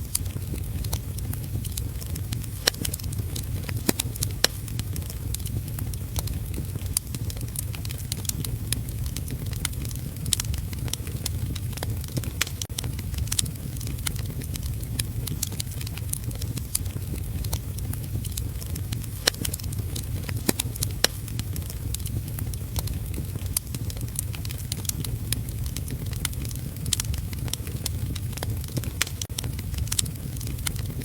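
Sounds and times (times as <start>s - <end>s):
wood fire crackling and popping: 0.0s - 31.0s.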